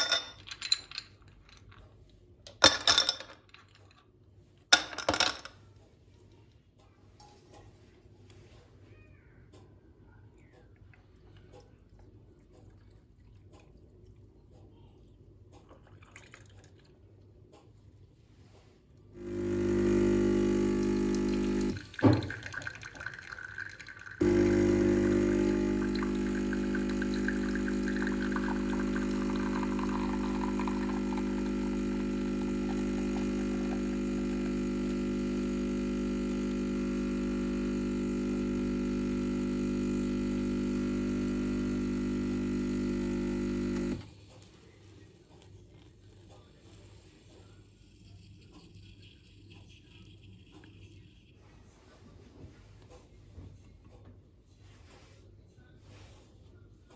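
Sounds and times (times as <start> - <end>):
kitchen appliance motor humming: 19.2 - 23.1, 24.0 - 44.1.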